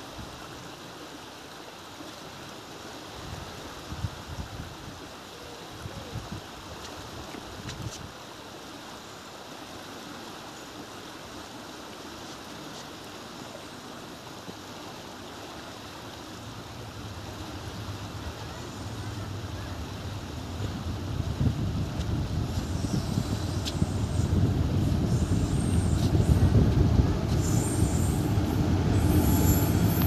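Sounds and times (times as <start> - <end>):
outdoor hiss: 0.0 - 30.0
train rumbling over bridge: 16.4 - 30.0.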